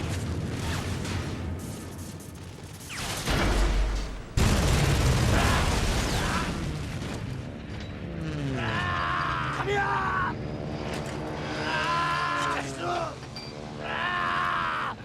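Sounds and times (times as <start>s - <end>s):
explosion blast and rumble: 0.0s - 7.5s.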